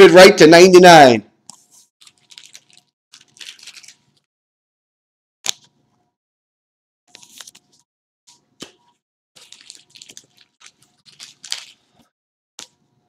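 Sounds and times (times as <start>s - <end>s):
cards rustling on a table: 1.5s - 4.0s, 7.1s - 8.8s, 9.4s - 12.1s.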